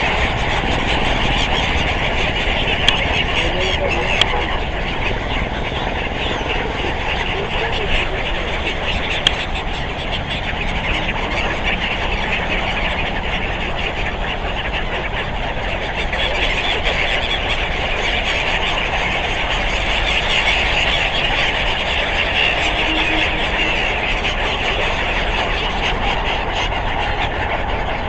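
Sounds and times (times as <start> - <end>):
road traffic noise: 0.0 - 28.0
high-pitched chatter: 18.7 - 28.0.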